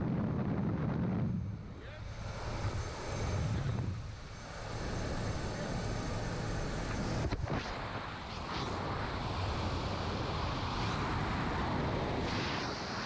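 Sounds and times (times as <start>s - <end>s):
wind rushing on microphone: 0.0s - 13.0s.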